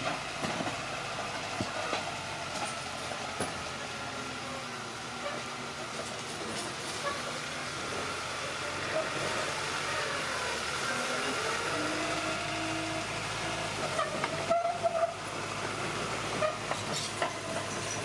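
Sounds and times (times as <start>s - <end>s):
bulldozer mechanical din: 0.0s - 18.0s.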